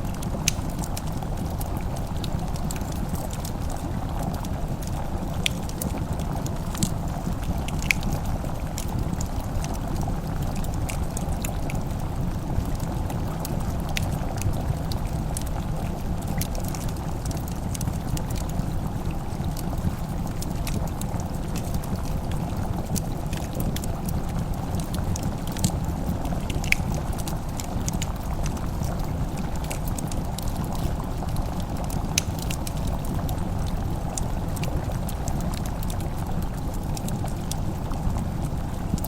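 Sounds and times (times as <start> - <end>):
fireplace crackling and popping: 0.0 - 39.0.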